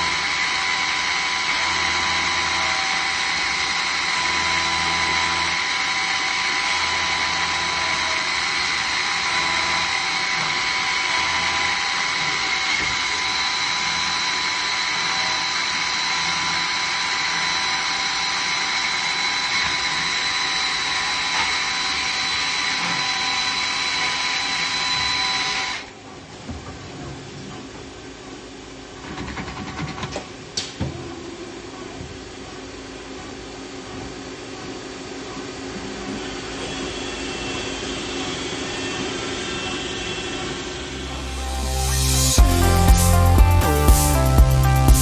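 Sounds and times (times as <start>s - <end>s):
lathe high-pitched whine: 0.0s - 25.9s, 35.8s - 44.8s
loud hiss: 40.9s - 45.0s.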